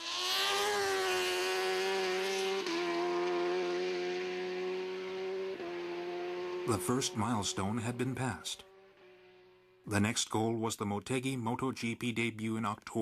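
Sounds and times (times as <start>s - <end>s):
racing motorcycle engine revving: 0.0s - 10.1s.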